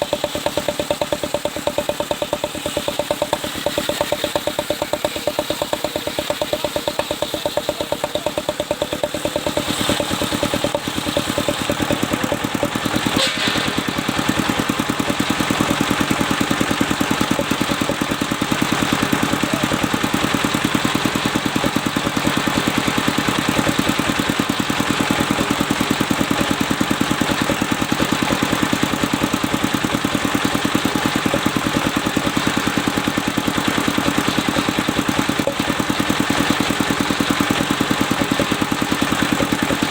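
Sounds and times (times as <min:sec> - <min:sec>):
engine thumping: 0:00.0 - 0:39.9
saw cutting log: 0:00.0 - 0:39.9.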